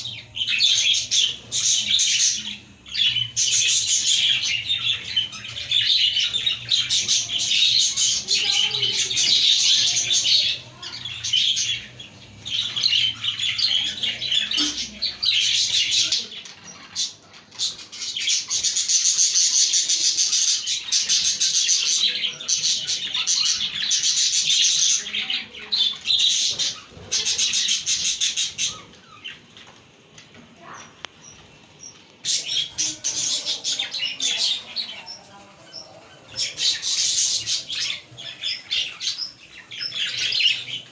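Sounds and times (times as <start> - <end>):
budgerigars chirping and warbling: 0.0 - 40.9.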